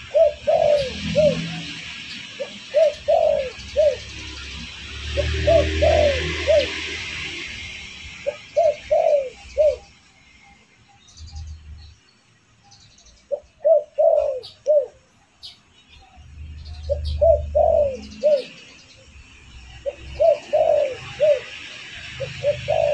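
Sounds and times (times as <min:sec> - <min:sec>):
dove cooing: 0:00.0 - 0:07.5, 0:08.2 - 0:09.9, 0:13.3 - 0:15.1, 0:16.8 - 0:18.6, 0:19.8 - 0:22.9
small birds chirping: 0:00.0 - 0:22.9.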